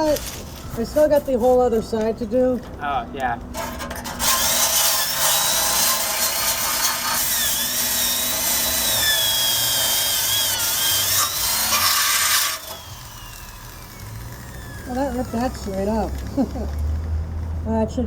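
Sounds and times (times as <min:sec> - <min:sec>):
power drill wire brush scouring metal: 0:03.5 - 0:16.8.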